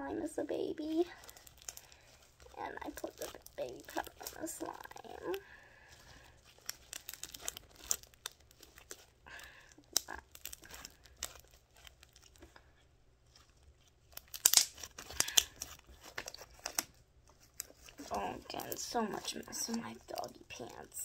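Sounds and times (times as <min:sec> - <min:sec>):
slime squished by hand: 0:14.1 - 0:20.6.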